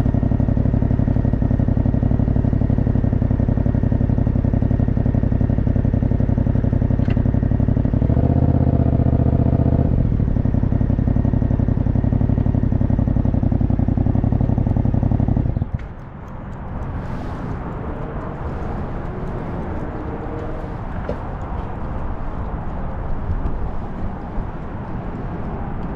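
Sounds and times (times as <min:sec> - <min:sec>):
motorcycle engine idling: 0:00.0 - 0:16.2.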